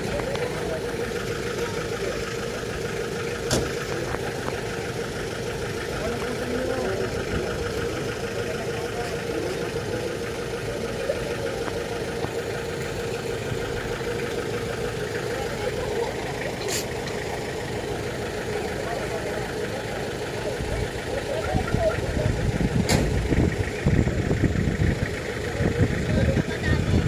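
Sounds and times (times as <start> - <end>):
faint voices: 0.0 - 27.0
vehicle engine idling: 0.0 - 27.0
sharp click: 22.8 - 23.1.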